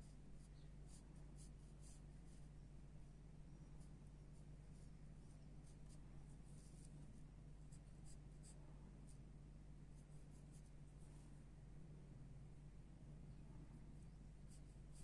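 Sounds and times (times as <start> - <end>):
low steady hum: 0.0 - 15.0
pencil scratching on paper: 0.9 - 2.5, 3.8 - 7.0.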